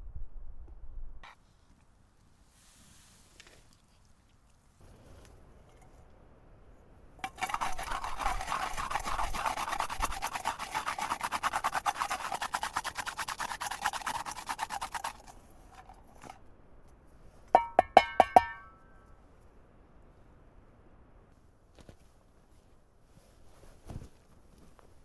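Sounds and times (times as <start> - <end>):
rapid rasping scraping strokes: 7.2 - 16.4.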